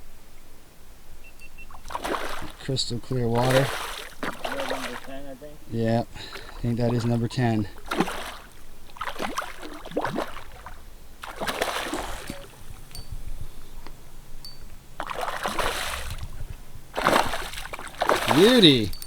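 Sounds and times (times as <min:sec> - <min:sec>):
fish thrashing in water: 0:01.7 - 0:05.3, 0:06.2 - 0:12.9, 0:15.0 - 0:18.9.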